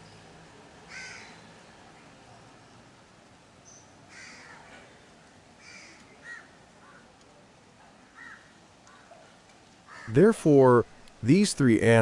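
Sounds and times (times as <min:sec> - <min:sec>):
faint outdoor background noise: 0:00.0 - 0:12.0
harsh bird calls: 0:00.9 - 0:01.5.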